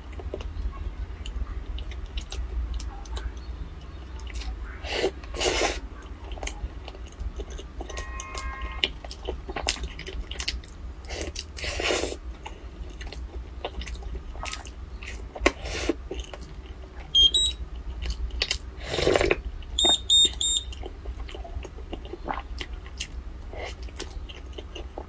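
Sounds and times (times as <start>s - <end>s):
chewing soft bread: 0.0s - 25.0s
short electronic beeps: 17.1s - 17.6s, 19.8s - 20.7s.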